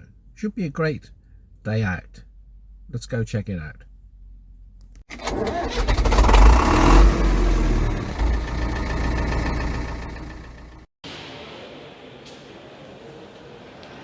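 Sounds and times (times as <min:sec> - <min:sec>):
engine low rumble: 0:06.0 - 0:10.9.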